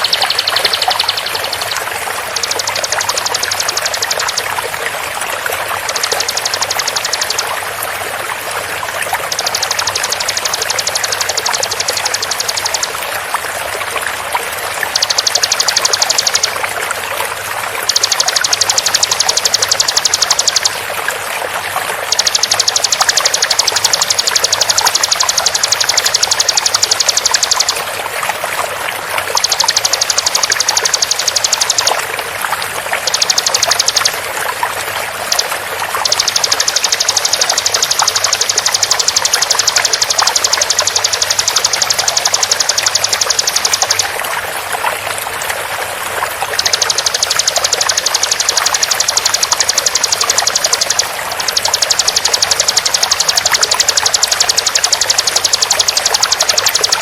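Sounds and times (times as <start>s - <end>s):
bird singing rapid high trill: 0.0s - 4.7s, 5.8s - 7.6s, 9.1s - 13.0s, 14.8s - 16.6s, 17.8s - 20.8s, 22.0s - 27.9s, 29.3s - 32.0s, 33.0s - 34.2s, 35.2s - 44.1s, 46.6s - 57.0s
running water: 0.0s - 57.0s.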